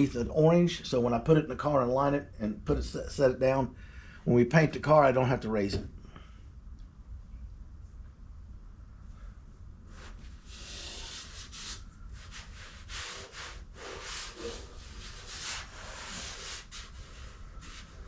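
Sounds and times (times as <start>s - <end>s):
sandpaper rasping on body filler: 10.0s - 18.0s.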